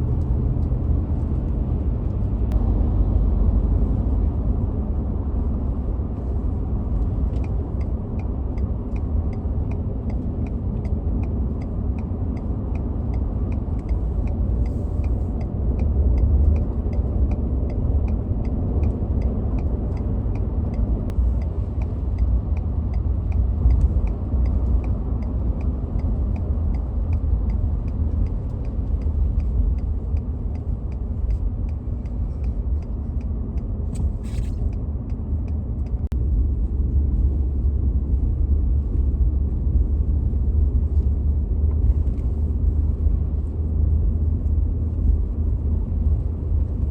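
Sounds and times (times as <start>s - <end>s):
vehicle driving rumble: 0.0s - 46.9s
light even ticking: 6.9s - 36.2s.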